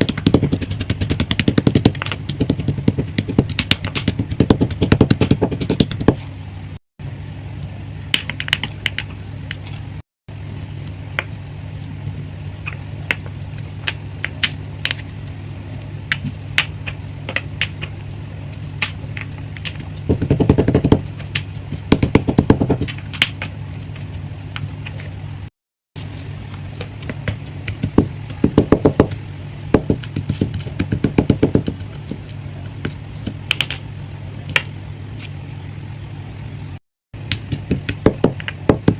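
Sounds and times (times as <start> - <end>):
steady low hum: 0.0 - 38.9
chalk crunching and crackling: 10.6 - 28.4, 30.0 - 33.4.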